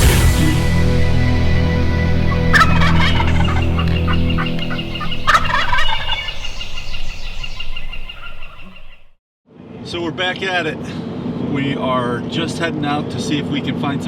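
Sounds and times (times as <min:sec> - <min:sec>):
background music: 0:00.0 - 0:06.3
turkey gobbling: 0:01.4 - 0:09.1.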